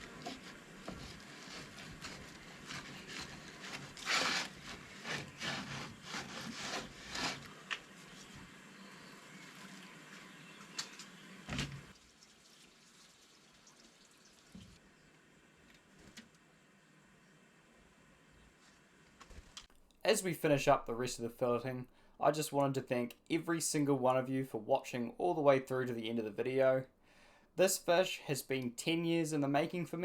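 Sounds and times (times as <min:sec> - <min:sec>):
knife cutting and scraping fish: 0:00.0 - 0:08.3.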